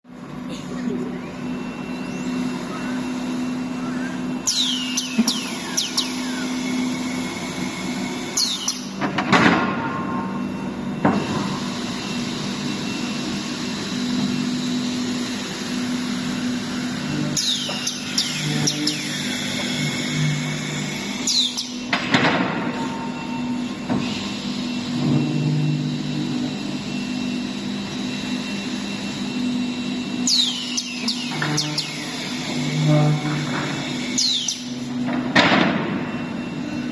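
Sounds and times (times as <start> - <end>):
woodworking machinery humming: 0.1 - 36.9
high falling squeals: 1.4 - 9.0.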